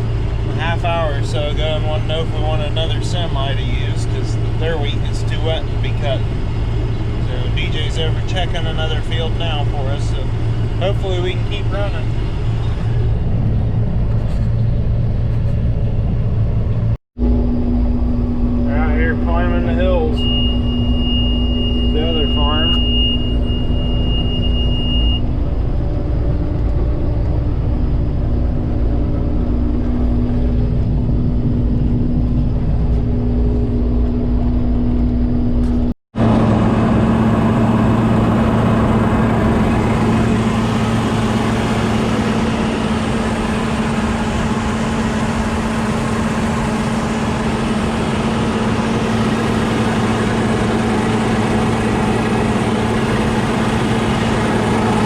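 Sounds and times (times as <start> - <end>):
vehicle engine droning: 0.0 - 55.0
high beep: 20.0 - 25.2.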